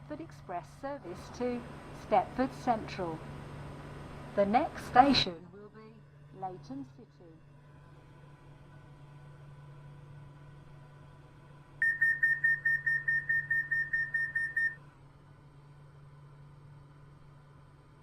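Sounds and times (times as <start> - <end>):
train low hum: 0.0 - 18.0
rapid high beeping: 11.8 - 14.8.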